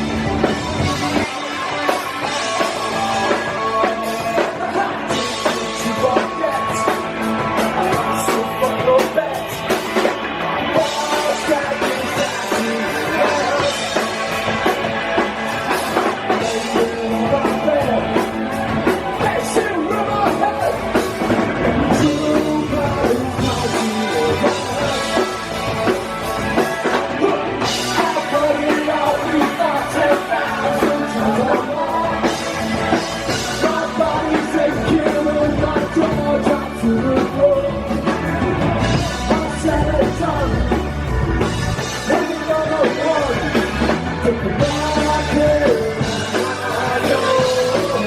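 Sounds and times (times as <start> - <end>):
drum kit: 0.0 - 48.0
electric guitar: 0.0 - 48.0
live punk rock band: 0.0 - 48.0.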